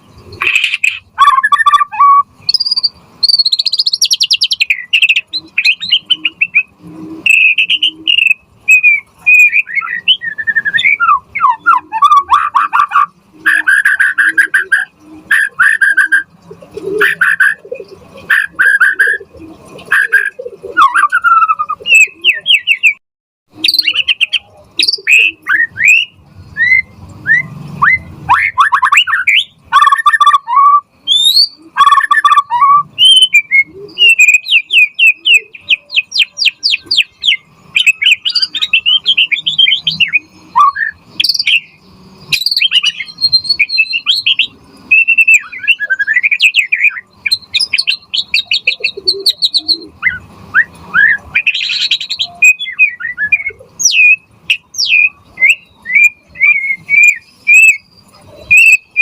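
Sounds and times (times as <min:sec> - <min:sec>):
bird singing varied whistles: 0:00.0 - 0:16.3, 0:17.0 - 0:19.3, 0:19.9 - 0:23.0, 0:23.6 - 0:59.0.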